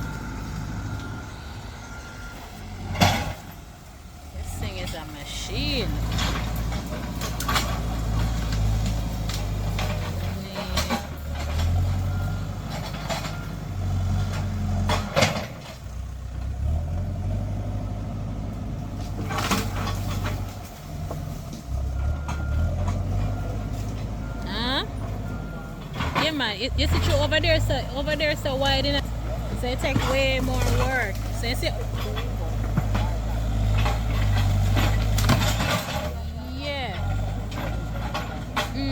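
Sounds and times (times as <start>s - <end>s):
diesel engine under load: 0.0s - 38.9s
cracks and clanks of brush: 6.0s - 11.9s, 18.9s - 21.8s, 29.8s - 36.3s.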